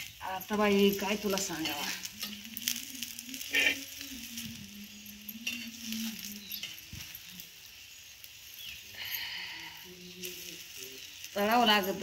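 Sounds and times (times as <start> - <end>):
metal spatula scraping: 0.0 - 7.6
food sizzling in oil on a griddle: 0.0 - 12.0.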